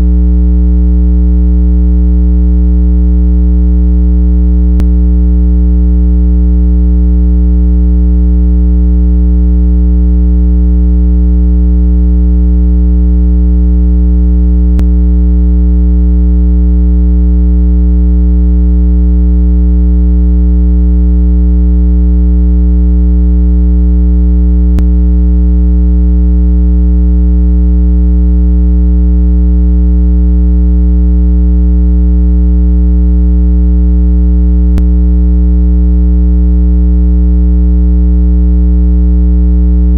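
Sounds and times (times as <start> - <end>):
electronic low hum tone: 0.0 - 1.3, 4.5 - 6.8, 14.6 - 15.5, 24.6 - 24.9, 34.7 - 34.9.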